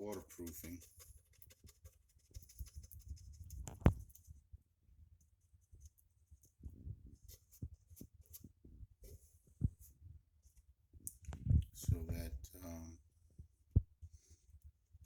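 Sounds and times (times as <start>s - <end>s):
stiff brush scratching wood: 0.0s - 4.3s.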